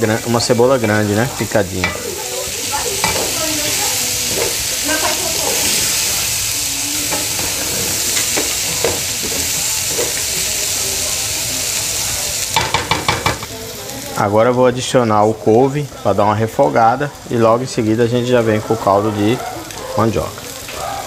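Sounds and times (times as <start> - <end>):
food sizzling in a pot: 0.0 - 21.0
spoon scraping and knocking pan: 0.5 - 6.3, 7.0 - 10.8, 12.5 - 13.5.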